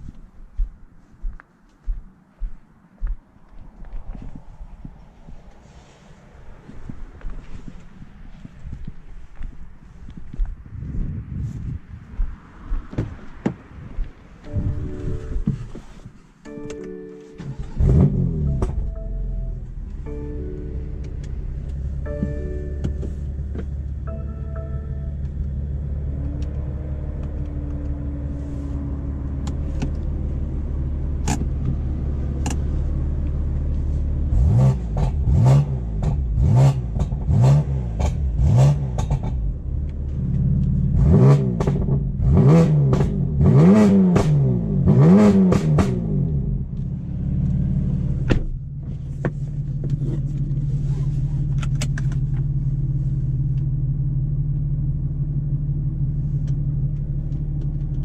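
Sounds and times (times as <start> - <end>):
car engine revving: 17.4 - 24.2, 25.2 - 49.2.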